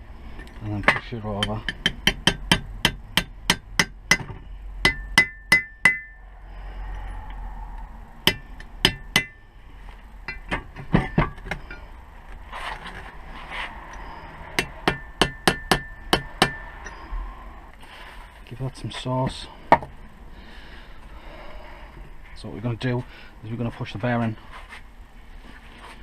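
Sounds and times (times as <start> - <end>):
hammer tapping metal: 0.8 - 6.2, 8.3 - 9.4, 14.6 - 17.0.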